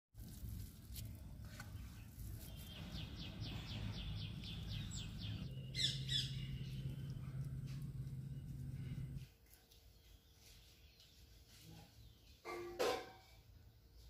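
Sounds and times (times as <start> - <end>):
steady low hum: 3.1 - 9.3.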